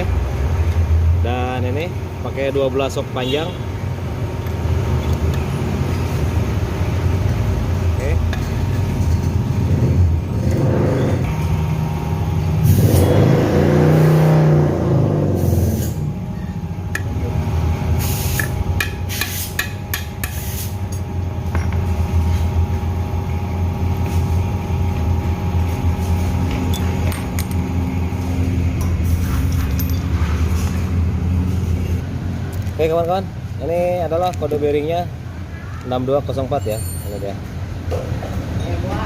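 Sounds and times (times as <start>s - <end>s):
low hum of vehicle noise: 0.0s - 39.0s
passing vehicle: 9.5s - 17.7s
hand tools clinking on metal: 29.5s - 30.2s, 36.4s - 37.4s.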